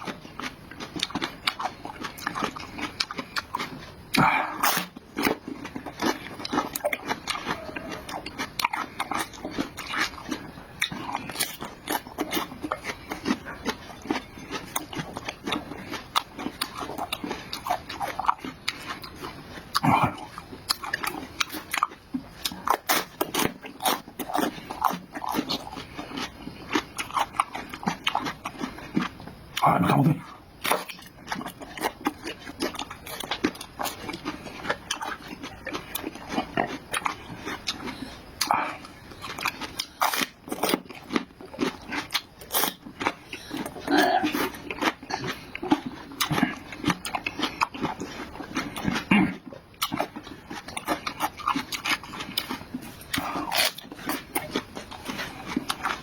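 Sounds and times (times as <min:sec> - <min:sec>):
person chewing noisily: 0:00.0 - 0:56.0.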